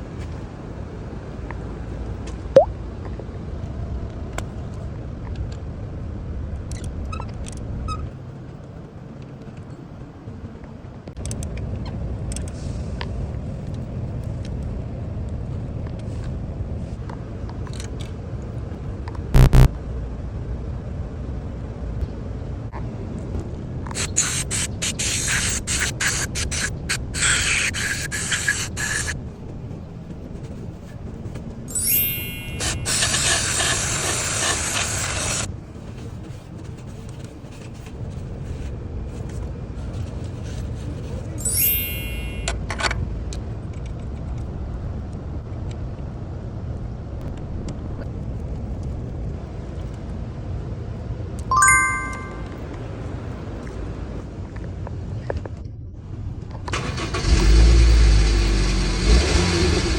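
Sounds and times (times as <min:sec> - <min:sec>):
short beeps: 0:19.4 - 0:19.7, 0:31.7 - 0:33.0, 0:41.4 - 0:42.5, 0:51.5 - 0:52.6
sharp rising squeak: 0:31.7 - 0:33.2, 0:41.4 - 0:42.5.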